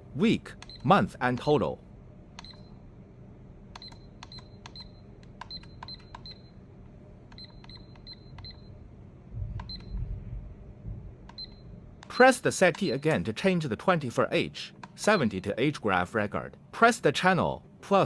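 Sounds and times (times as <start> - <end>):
button clicks with key beeps: 0.6 - 1.5, 2.4 - 2.8, 3.8 - 6.5, 7.3 - 8.7, 9.6 - 10.0, 11.3 - 13.2.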